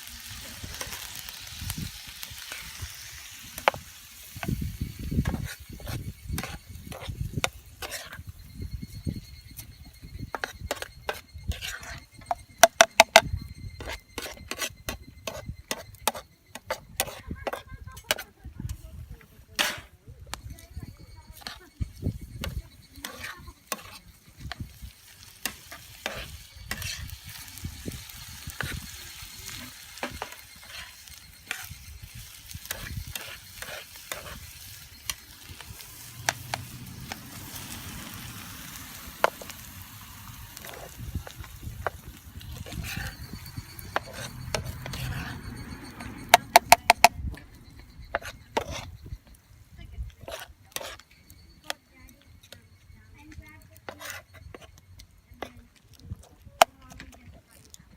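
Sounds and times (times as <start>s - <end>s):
food sizzling in a frying pan: 0.0s - 16.2s, 17.0s - 46.8s.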